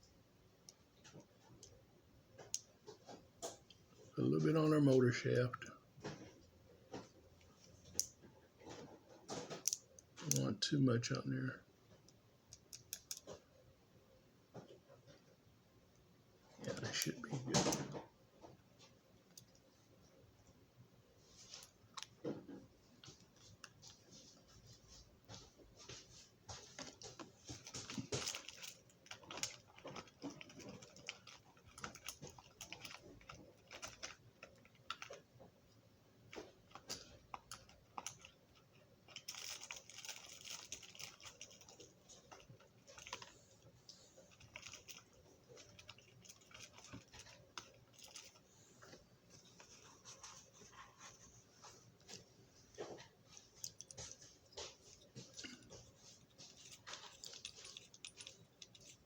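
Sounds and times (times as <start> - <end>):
toy parts clicking and tapping: 12.0 - 13.4, 26.8 - 35.2, 36.3 - 43.4, 44.3 - 48.4.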